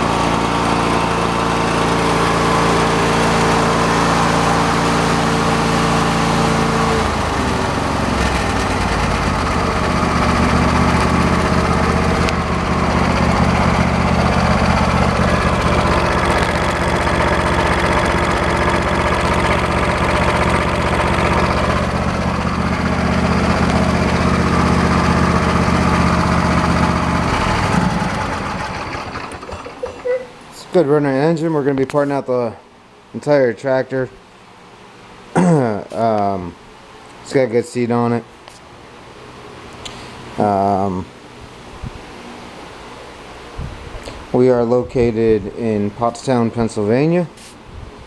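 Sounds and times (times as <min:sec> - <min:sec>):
lawn tractor engine running: 0:00.0 - 0:31.6
engine shutting off: 0:00.0 - 0:32.2, 0:38.8 - 0:48.0.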